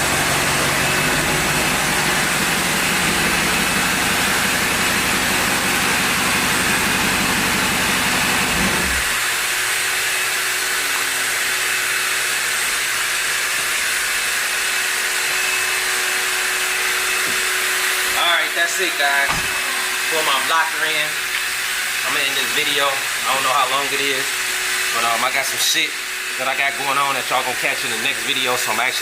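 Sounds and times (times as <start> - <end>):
car engine running: 0.0 - 9.8.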